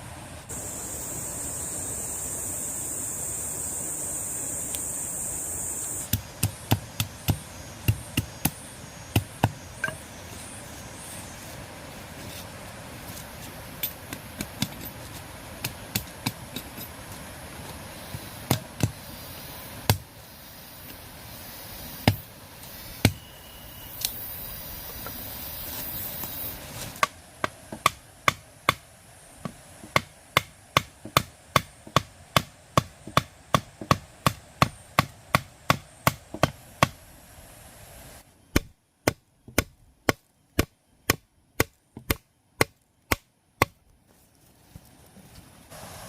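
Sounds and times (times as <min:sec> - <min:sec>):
hand tool chopping: 0:06.1 - 0:10.0, 0:13.8 - 0:16.9, 0:18.4 - 0:19.0, 0:38.5 - 0:43.8.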